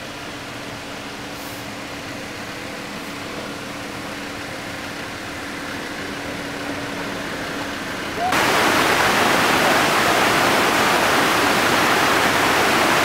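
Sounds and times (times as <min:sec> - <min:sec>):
vehicle engine humming: 0:00.0 - 0:13.0
even rushing noise: 0:08.2 - 0:13.0.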